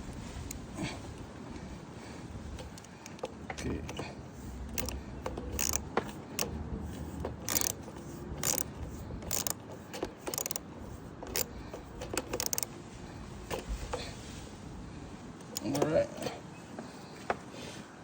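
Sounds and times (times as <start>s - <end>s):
metal wrench clicking on nuts: 2.5s - 12.7s, 15.4s - 16.3s.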